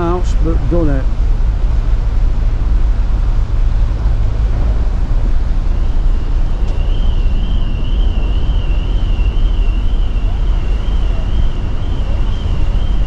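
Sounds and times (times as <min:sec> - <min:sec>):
ferry engine rumble: 0:00.0 - 0:13.0
wind buffeting microphone: 0:00.0 - 0:13.0
thin wavering high whistle: 0:05.6 - 0:13.0.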